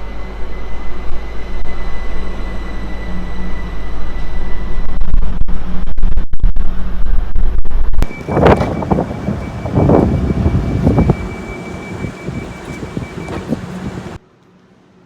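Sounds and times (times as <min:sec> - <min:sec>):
wind buffeting microphone: 0:08.0 - 0:14.2
train rumbling past: 0:08.0 - 0:15.0.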